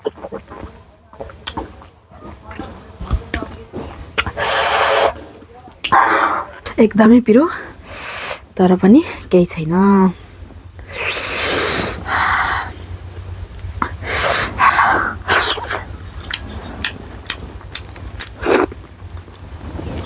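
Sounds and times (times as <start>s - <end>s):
wet chewing and mouth clicks: 0.0s - 6.7s, 13.5s - 20.0s
hissing sniffs and sharp breaths: 3.8s - 6.6s, 7.5s - 8.5s, 10.2s - 12.8s, 13.8s - 17.5s.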